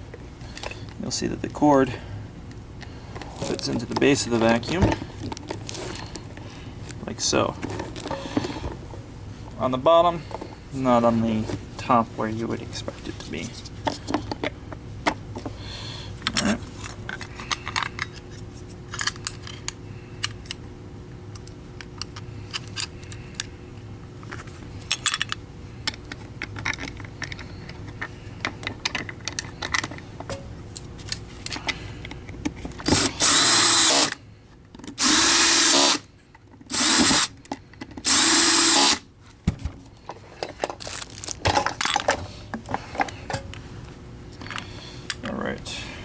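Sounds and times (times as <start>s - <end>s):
clicks and knocks of parts handled: 12.8s - 15.6s, 16.2s - 20.6s, 21.3s - 35.0s, 36.2s - 43.6s, 44.3s - 45.3s
power drill running: 32.9s - 34.2s, 35.0s - 36.0s, 36.7s - 37.3s, 38.0s - 39.0s.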